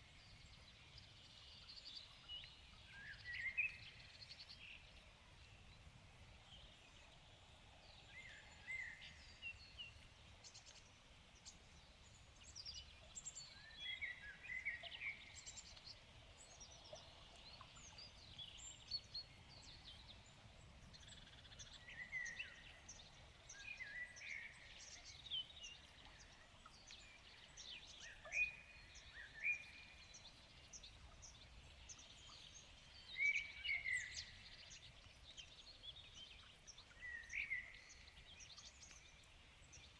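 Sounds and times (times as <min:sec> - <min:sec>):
songbirds singing and chirping: 0:11.4 - 0:39.9.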